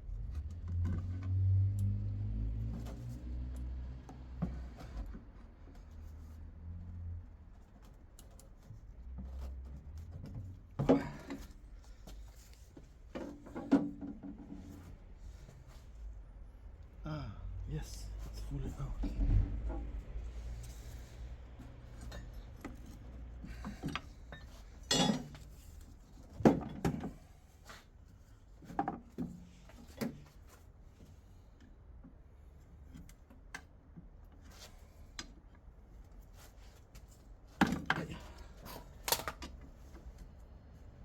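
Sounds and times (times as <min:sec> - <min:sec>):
metal parts clanking: 0:24.8 - 0:25.4.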